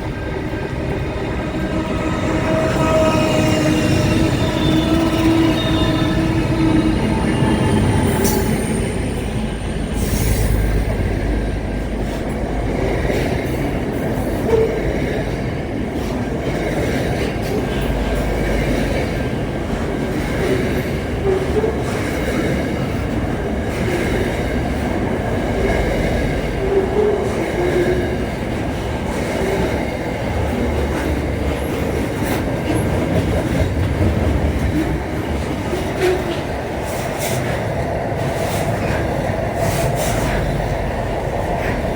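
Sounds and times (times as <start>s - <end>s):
train wheels rumbling on track: 0.0s - 41.9s.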